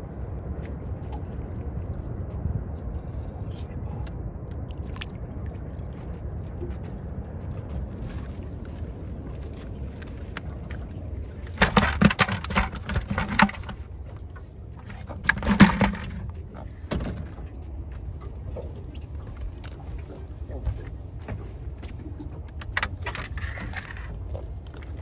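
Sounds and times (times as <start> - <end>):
steady low rumble: 0.0 - 25.0
clattering knocks and clicks: 11.4 - 19.0, 20.5 - 24.2.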